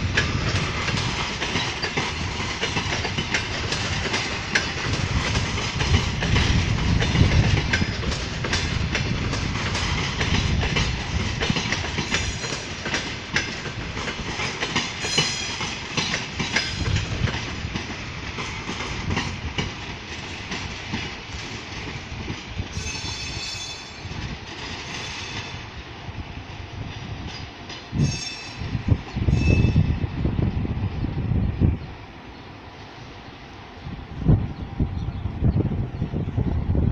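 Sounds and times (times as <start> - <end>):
train wheels clicking over rail joints: 0.0 - 25.8
train rumble: 0.0 - 36.9
high squeal: 22.8 - 24.1.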